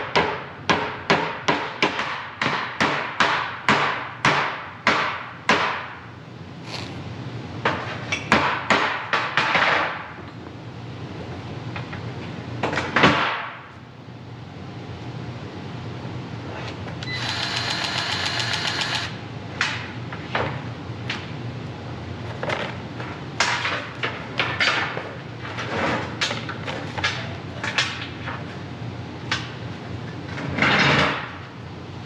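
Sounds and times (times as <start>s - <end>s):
power tool rattling burst: 17.2s - 19.1s.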